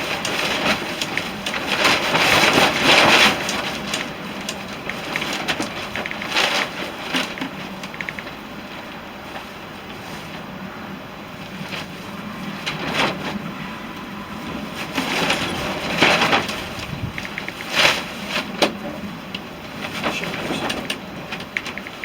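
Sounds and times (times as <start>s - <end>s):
quick rapid clicks: 0.0s - 8.5s, 16.9s - 18.1s, 20.0s - 22.0s
tarp flapping: 0.0s - 22.0s
wind rushing: 10.5s - 18.2s.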